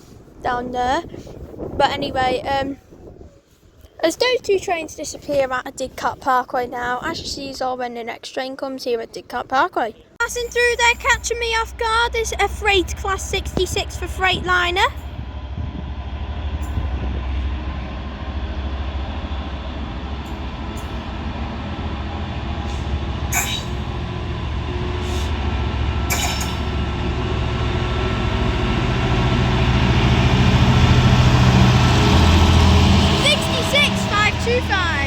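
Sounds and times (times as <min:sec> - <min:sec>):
freight train rumbling on rails: 0:10.2 - 0:35.0
sharp rail clacks: 0:22.6 - 0:24.2, 0:26.0 - 0:26.8.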